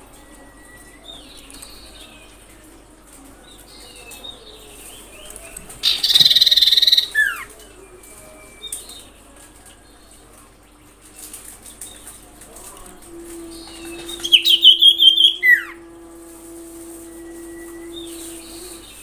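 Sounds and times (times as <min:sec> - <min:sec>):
bird harsh rattling trill: 0:05.8 - 0:07.5, 0:13.7 - 0:15.8
bird whistling: 0:05.8 - 0:07.5, 0:13.6 - 0:15.8.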